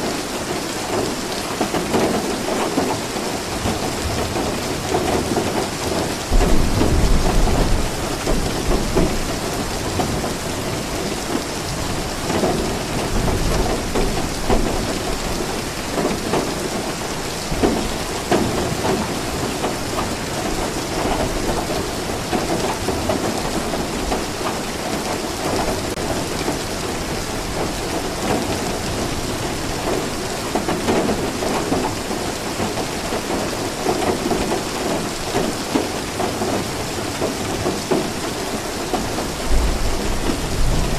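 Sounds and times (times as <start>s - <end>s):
rain falling: 0.0s - 40.9s
thunder rumbling: 5.9s - 15.5s, 39.2s - 40.9s.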